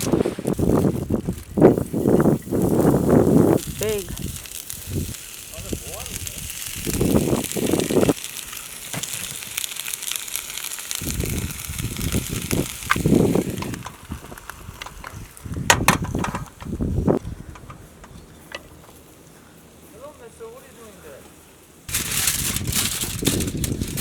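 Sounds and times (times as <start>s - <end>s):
food sizzling in a pan: 0.0s - 14.8s
handling knocks: 15.7s - 16.8s.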